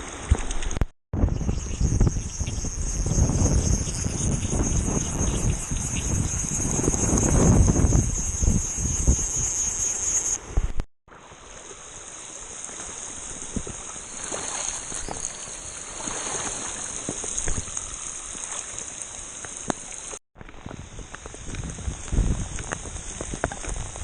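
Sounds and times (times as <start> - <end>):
high hiss: 1.2 - 10.7
rushing water: 10.5 - 20.2.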